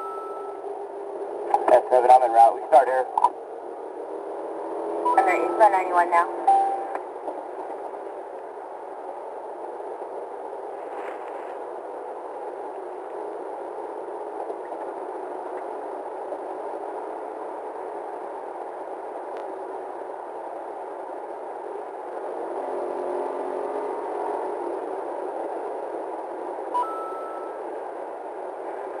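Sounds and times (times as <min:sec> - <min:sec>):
police radio static hissing: 0:01.5 - 0:03.3.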